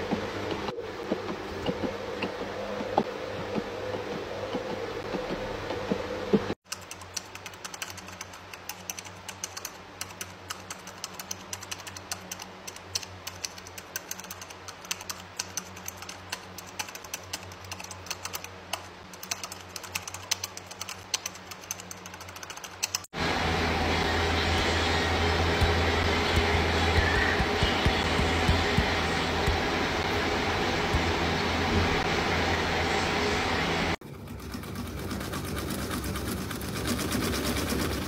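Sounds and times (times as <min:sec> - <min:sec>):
rapid light clicking and tapping: 0:06.5 - 0:23.1, 0:25.6 - 0:29.7
low steady hum: 0:07.4 - 0:38.0.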